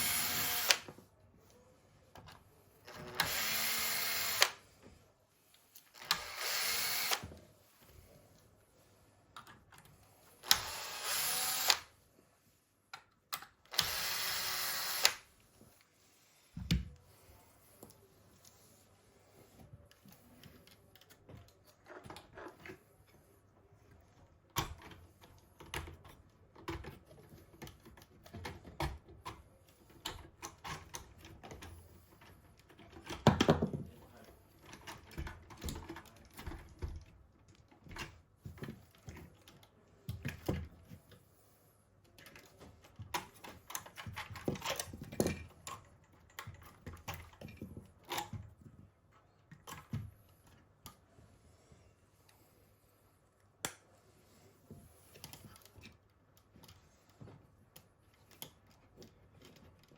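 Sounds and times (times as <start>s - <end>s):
small parts clicking and tapping: 42.0s - 51.0s, 54.7s - 59.9s.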